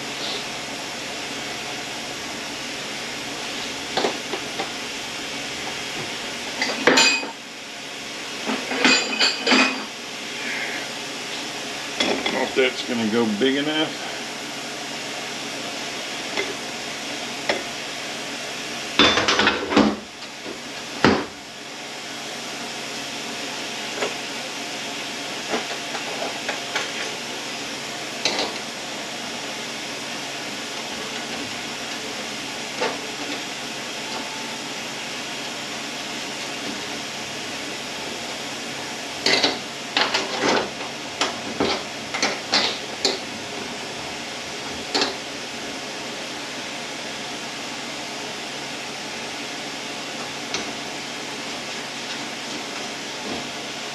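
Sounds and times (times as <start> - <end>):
shop fan hum: 0.0 - 53.9
metal tools clinking and clanking: 6.6 - 7.4, 8.6 - 9.9.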